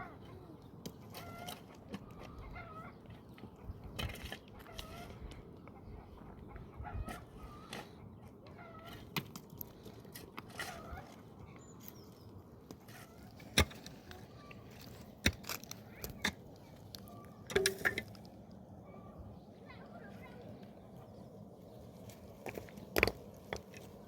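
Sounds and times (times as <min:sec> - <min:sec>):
chickens clucking: 0:00.0 - 0:09.2.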